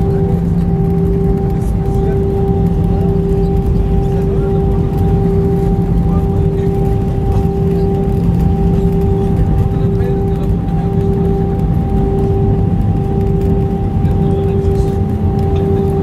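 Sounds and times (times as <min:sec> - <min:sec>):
airplane cabin rumble and hum: 0:00.0 - 0:16.0.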